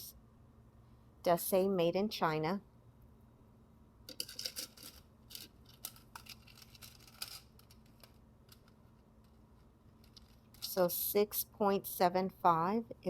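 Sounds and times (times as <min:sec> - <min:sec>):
bracelet being handled: 0:04.1 - 0:10.8.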